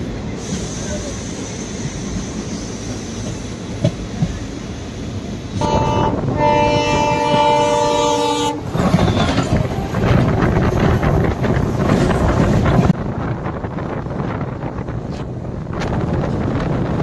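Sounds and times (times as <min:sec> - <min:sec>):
passing train coaches clattering: 0:00.0 - 0:17.0
train running noise: 0:00.0 - 0:17.0
train horn chord: 0:05.6 - 0:08.6.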